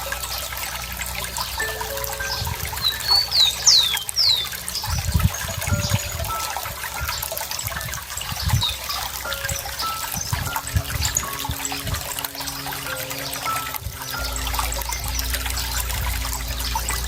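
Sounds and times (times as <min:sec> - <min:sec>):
water trickling and gurgling: 0:00.0 - 0:17.0
songbird whistled chirps: 0:01.6 - 0:11.8.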